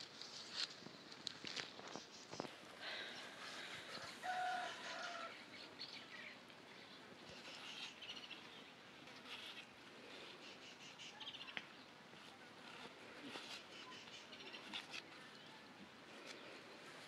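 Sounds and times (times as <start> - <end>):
birds chirping faintly: 0.0 - 17.0.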